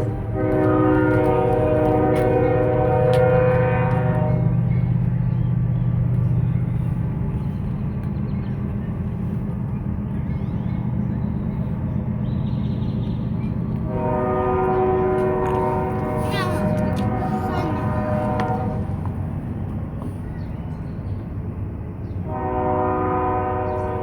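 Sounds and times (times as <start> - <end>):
train horn chord: 0.0 - 4.7, 13.8 - 19.2, 22.2 - 24.0
passing train rumble: 0.0 - 24.0.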